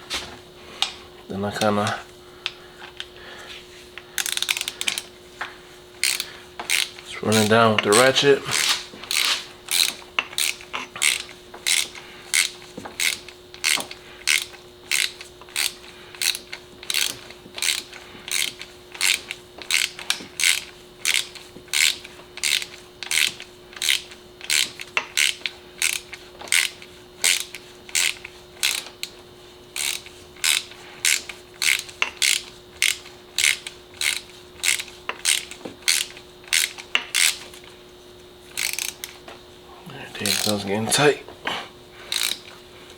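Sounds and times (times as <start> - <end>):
hand ratchet clicking: 4.0 - 37.7, 38.5 - 39.3, 40.2 - 41.1, 42.1 - 42.6.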